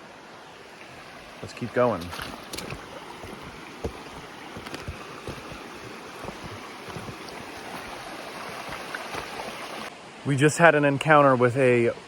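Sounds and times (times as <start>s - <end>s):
creek rushing: 0.0s - 11.8s
water splashes and knocks: 1.5s - 9.9s.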